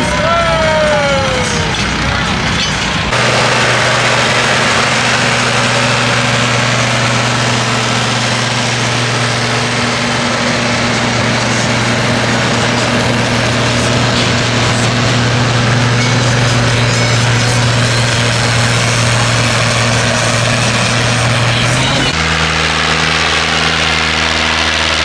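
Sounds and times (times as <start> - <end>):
tractor engine running loud: 0.0 - 25.0.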